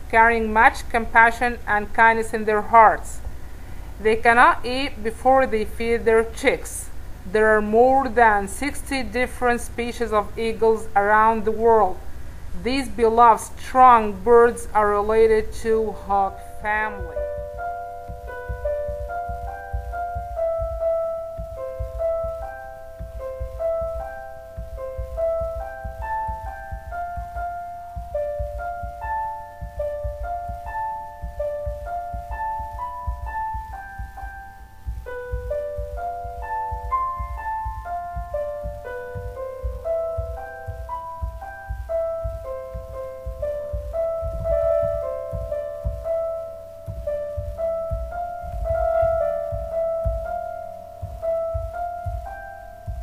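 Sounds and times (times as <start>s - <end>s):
piano music: 14.2s - 53.0s.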